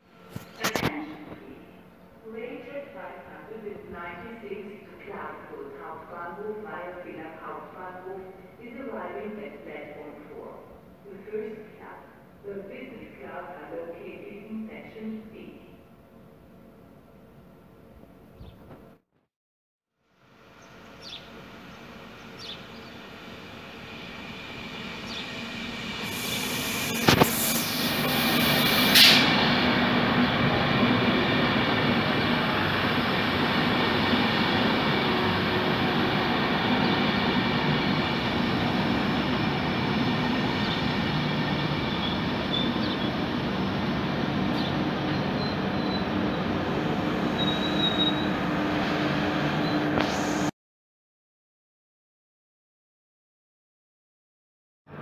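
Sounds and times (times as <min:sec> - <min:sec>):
train approaching: 0:20.2 - 0:50.5
brief high squeaks: 0:47.4 - 0:48.3.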